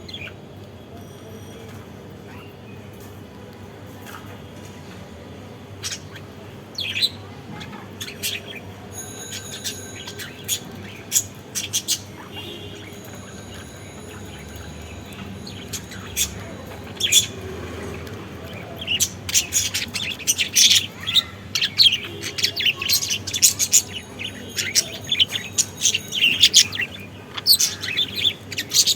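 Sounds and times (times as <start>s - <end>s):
budgerigars chirping: 8.0s - 28.9s.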